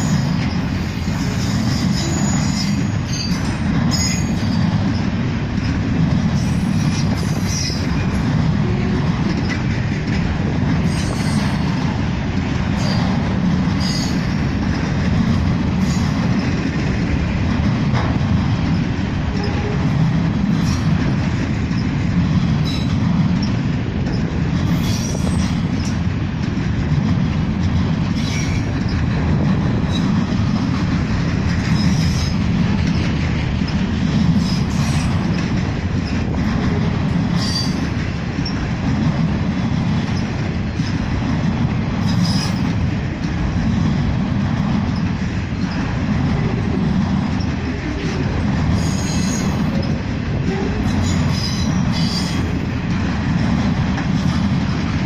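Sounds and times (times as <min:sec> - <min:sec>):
train wheels rumbling on rails: 0:00.0 - 0:55.0
high-pitched wheel squeals: 0:01.3 - 0:04.6.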